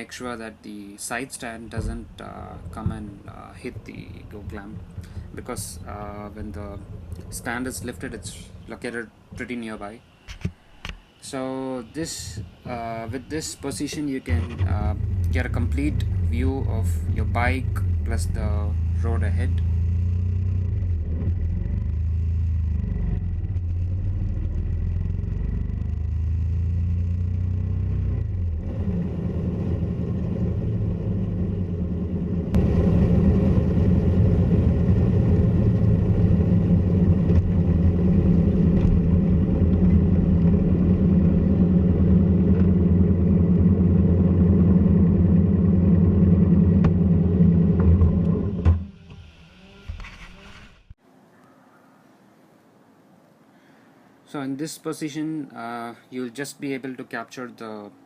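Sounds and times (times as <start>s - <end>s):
road noise: 0.0s - 51.5s
motorcycle engine: 1.7s - 9.5s, 12.0s - 50.0s.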